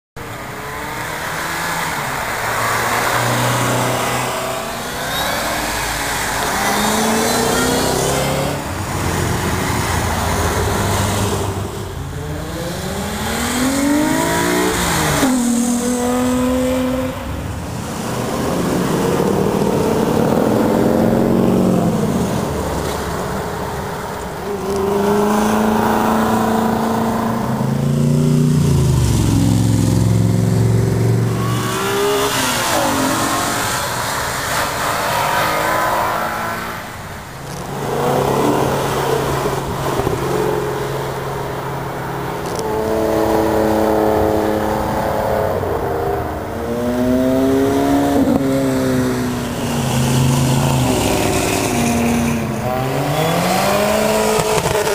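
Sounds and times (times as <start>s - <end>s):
performance cars accelerating hard: 0.2s - 54.9s.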